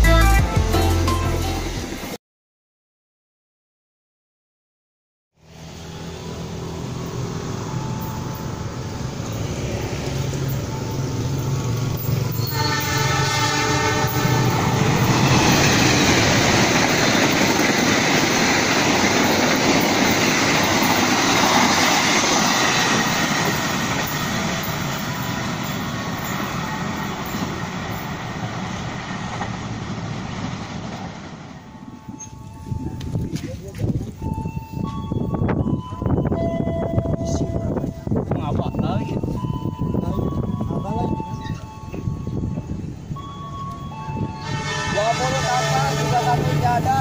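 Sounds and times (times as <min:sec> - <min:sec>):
locomotive engine drone: 0:05.4 - 0:47.0
train wheels on rails: 0:05.6 - 0:47.0
train horn blast: 0:12.3 - 0:15.6, 0:44.2 - 0:46.8.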